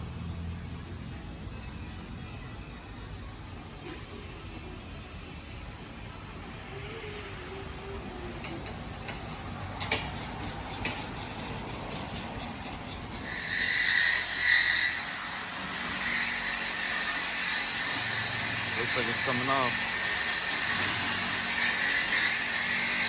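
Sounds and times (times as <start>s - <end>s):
loud high squeal: 13.2s - 23.0s.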